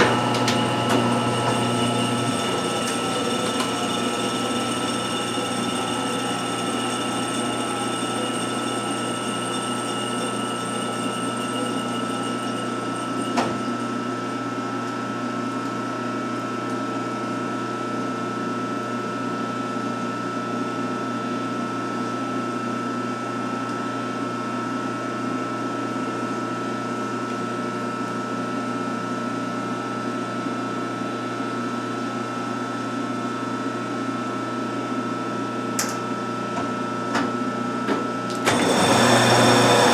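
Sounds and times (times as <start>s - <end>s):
lathe humming: 0.0s - 14.7s, 38.3s - 39.9s.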